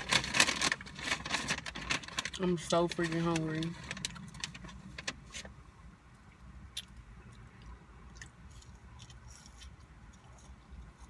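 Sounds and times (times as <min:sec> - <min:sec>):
person chewing: 0:06.7 - 0:11.0.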